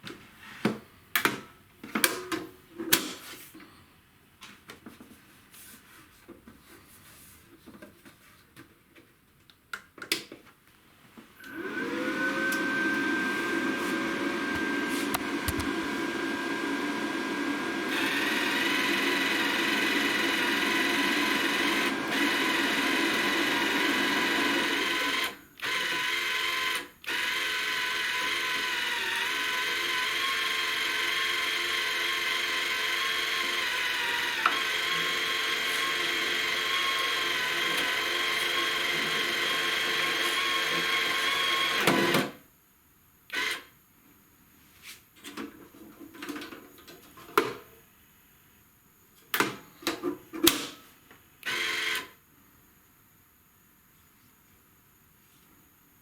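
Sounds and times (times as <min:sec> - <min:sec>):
small electric motor running: 0:17.9 - 0:41.8.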